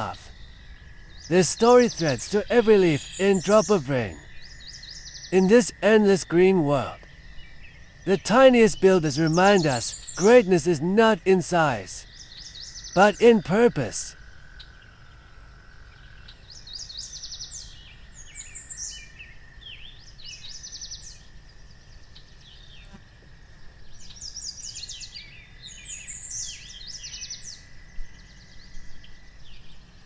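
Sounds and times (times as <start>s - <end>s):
birds chirping: 0.0s - 14.2s
low background hiss: 0.0s - 30.0s
steady high hum: 8.0s - 12.0s.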